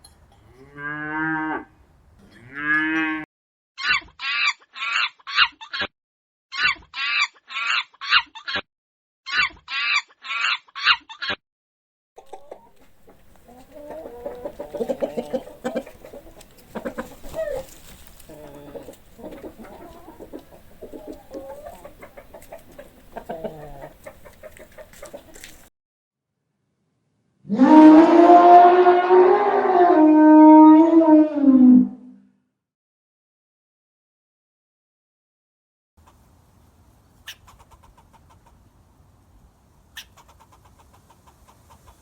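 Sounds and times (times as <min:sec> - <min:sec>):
high-pitched chicken calls: 0:03.8 - 0:05.9, 0:06.5 - 0:08.7, 0:09.3 - 0:11.4, 0:12.2 - 0:25.5
hens clucking: 0:12.2 - 0:25.7, 0:37.2 - 0:38.7, 0:40.0 - 0:42.0.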